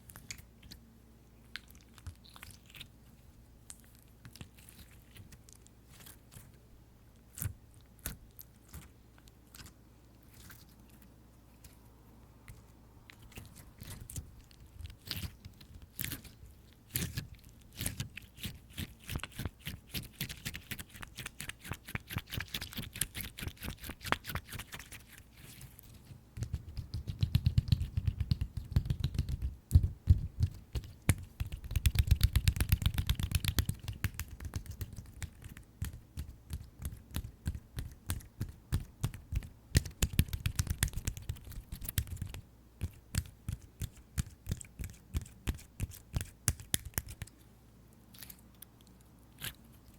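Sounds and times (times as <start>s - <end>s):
fingers tapping on slime: 26.4s - 44.6s.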